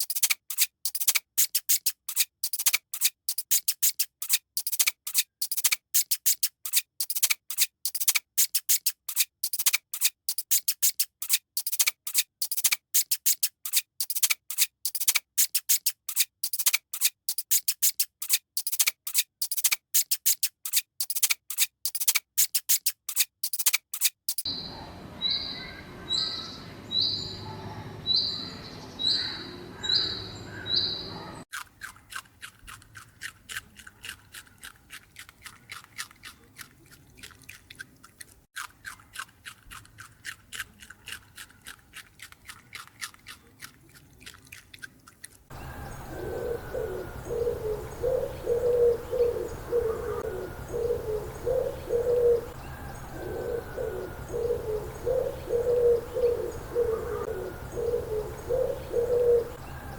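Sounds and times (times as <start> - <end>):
rapid crisp clicking: 0.0 - 24.5
birds peeping: 24.5 - 31.5, 45.5 - 59.9
bird cooing: 45.6 - 59.9.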